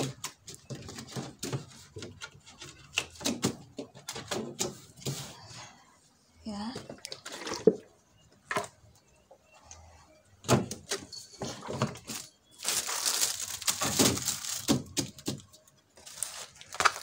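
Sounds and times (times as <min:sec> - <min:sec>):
plastic mats knocking and clicking: 0:00.0 - 0:05.1, 0:10.4 - 0:15.7
plastic crinkling and rustling: 0:11.5 - 0:17.0.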